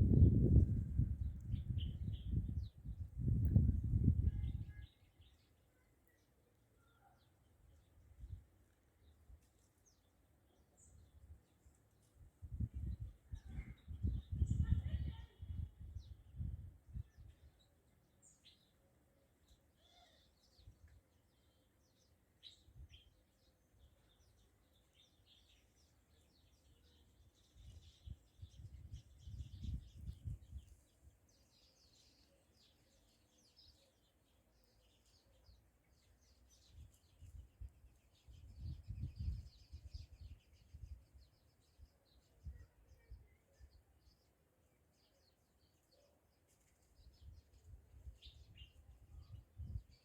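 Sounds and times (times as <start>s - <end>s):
small birds chirping: 0.1s - 50.0s.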